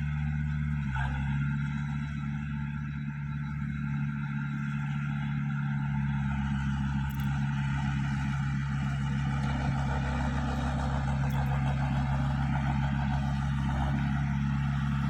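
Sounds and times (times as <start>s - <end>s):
diesel engine running steadily: 0.0s - 15.0s.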